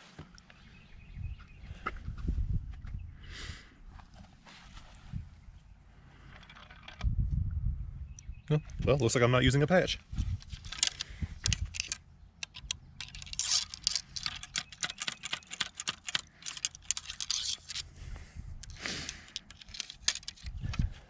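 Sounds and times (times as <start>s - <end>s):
scraping and rustling handling: 10.2s - 17.9s, 18.6s - 20.9s
handcuff chain clinking: 10.5s - 17.8s, 18.6s - 20.6s.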